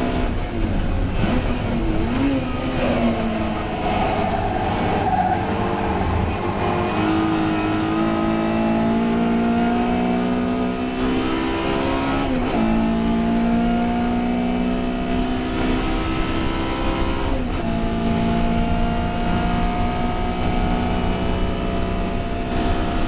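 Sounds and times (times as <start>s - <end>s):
race car engine accelerating: 0.0s - 23.0s
gear change: 0.4s - 9.4s.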